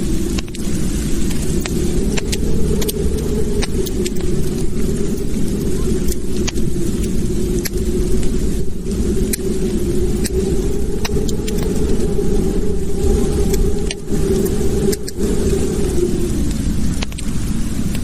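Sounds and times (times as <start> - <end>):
fire crackling and popping: 0.0 - 18.0
fire rumbling: 0.0 - 18.0.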